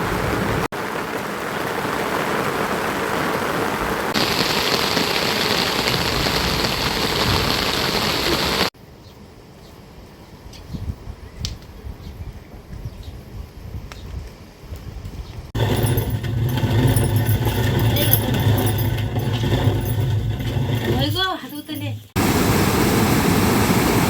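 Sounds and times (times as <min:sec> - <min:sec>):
heavy rain: 0:00.0 - 0:08.8, 0:22.2 - 0:24.0.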